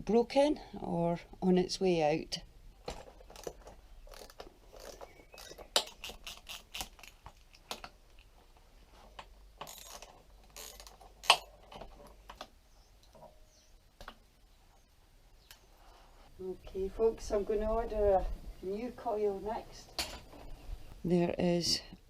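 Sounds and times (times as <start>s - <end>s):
tools and metal parts clicking: 2.9s - 7.9s, 9.6s - 12.2s.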